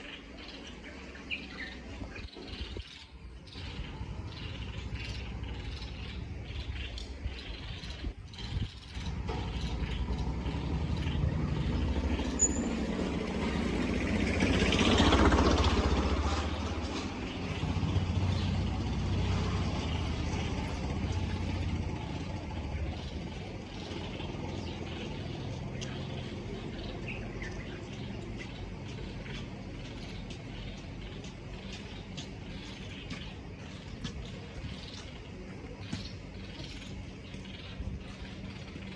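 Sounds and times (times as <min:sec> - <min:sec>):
traffic engine rumble: 0:00.0 - 0:38.9
vehicle passing loudly: 0:09.0 - 0:31.1.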